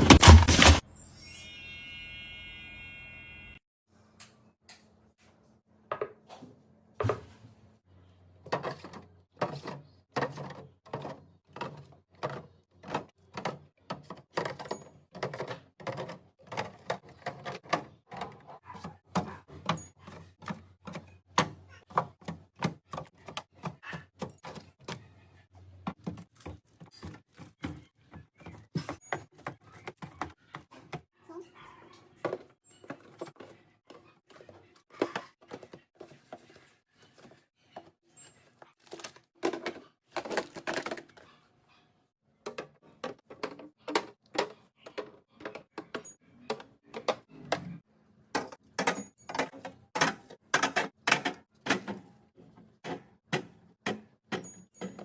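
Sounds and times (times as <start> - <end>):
containers clacking in fridge: 38.8 - 41.2, 42.4 - 47.7, 48.3 - 55.0.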